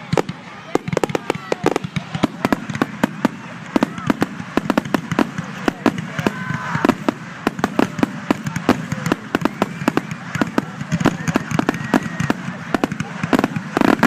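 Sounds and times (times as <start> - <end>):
fireworks bursts: 0.0 - 14.0.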